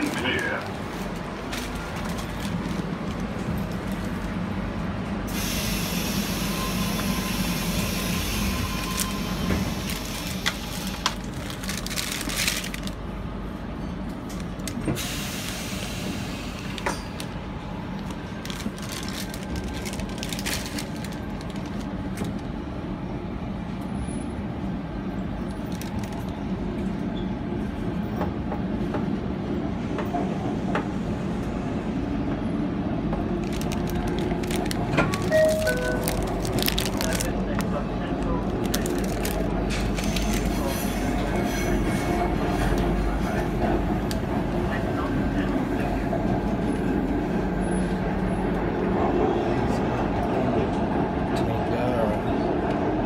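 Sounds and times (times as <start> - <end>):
train wheels rumbling on rails: 0.0 - 53.0
hiss: 5.3 - 6.7.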